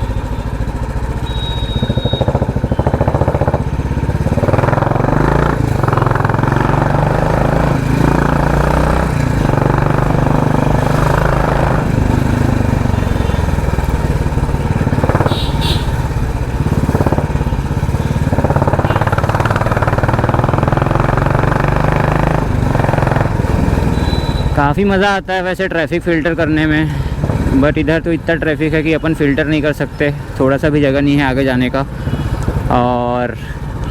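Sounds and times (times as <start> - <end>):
motorcycle engine pulsing: 0.0 - 25.0.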